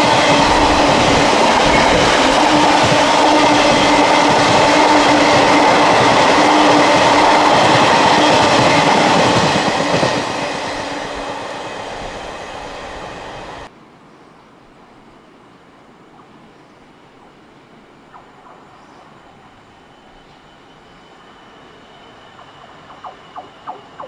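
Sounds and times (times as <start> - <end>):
freight train wagons rumbling past: 0.0 - 13.7.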